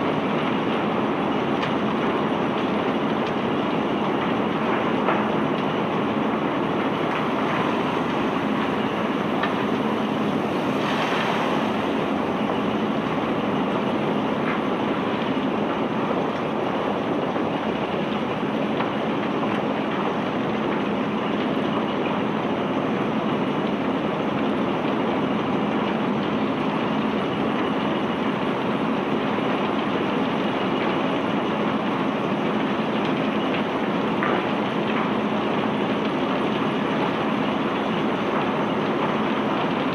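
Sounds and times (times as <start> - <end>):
heavy machinery running: 0.0 - 23.8.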